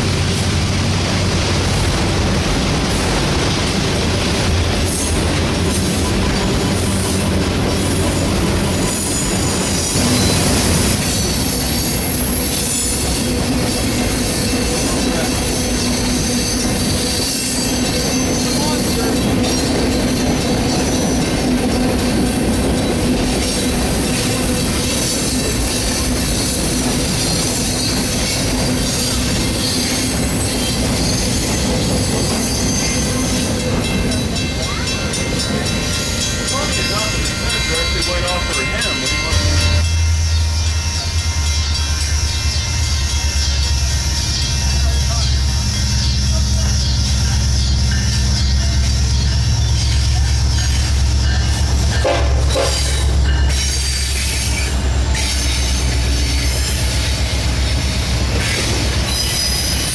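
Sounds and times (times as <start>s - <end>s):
train cars rolling past: 0.0s - 59.9s
wheel squeal: 25.0s - 33.6s, 58.4s - 59.9s.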